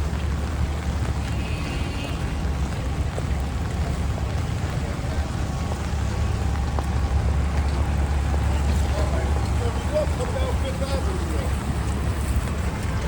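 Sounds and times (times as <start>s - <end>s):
low rumble of traffic: 0.0s - 13.0s
rain hissing on wet pavement: 0.0s - 13.0s.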